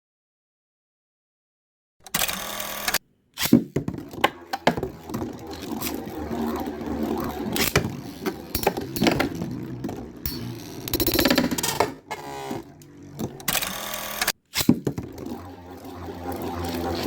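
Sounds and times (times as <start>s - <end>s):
spinning tops whirring: 3.9s - 17.0s.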